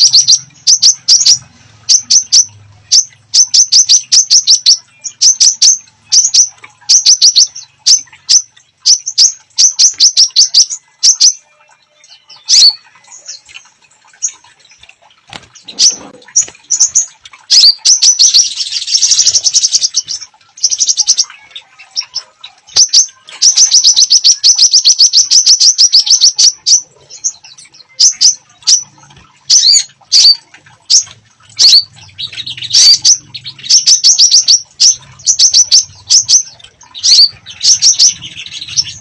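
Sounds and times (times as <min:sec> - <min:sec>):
songbird trills and whistles: 0:12.0 - 0:13.5, 0:15.7 - 0:39.0.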